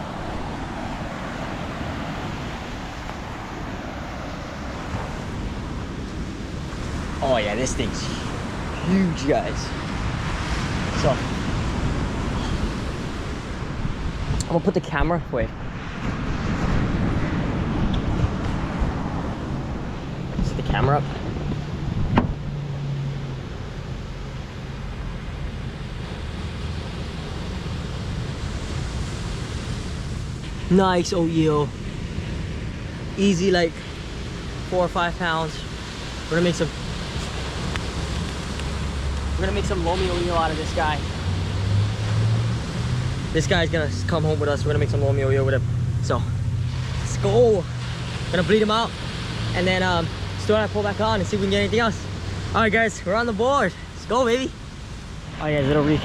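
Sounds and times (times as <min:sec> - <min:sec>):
wind noise on microphone: 0:00.0 - 0:23.6
ocean surf washing ashore: 0:00.0 - 0:56.0
wind rumbling on microphone: 0:00.0 - 0:56.0.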